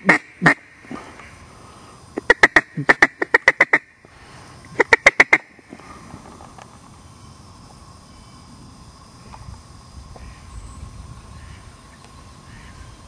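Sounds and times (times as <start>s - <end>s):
duck quacking loudly: 0.0s - 0.6s, 2.2s - 3.8s, 4.8s - 5.5s.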